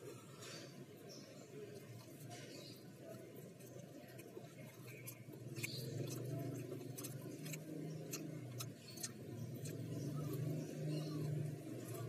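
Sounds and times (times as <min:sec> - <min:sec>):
person chewing food: 0:04.1 - 0:10.1.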